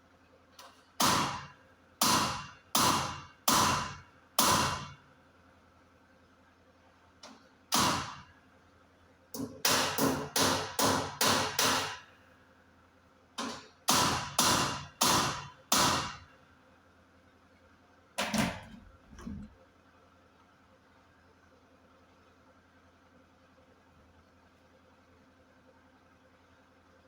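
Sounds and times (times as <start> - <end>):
hammer on sheet metal: 1.0 - 4.9, 9.4 - 12.0, 13.9 - 16.2.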